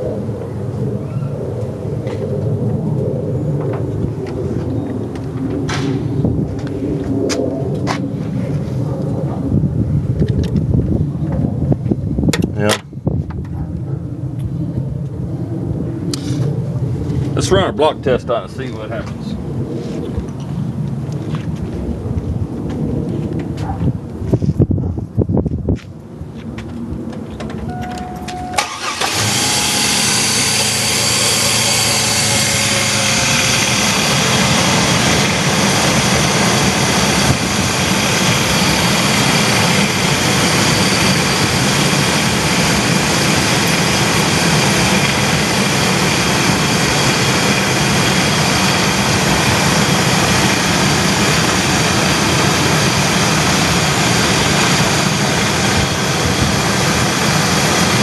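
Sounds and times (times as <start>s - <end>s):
van engine starting and idling: 27.6s - 58.0s.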